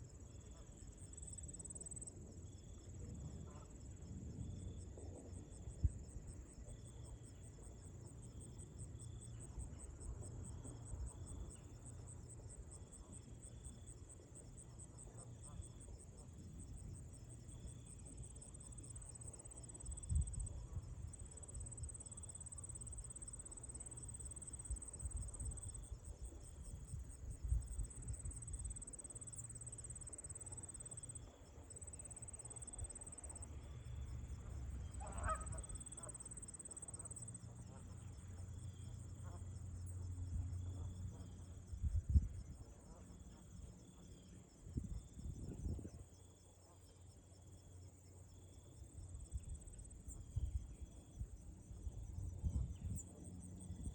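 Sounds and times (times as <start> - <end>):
goose honk: 35.0 - 36.2.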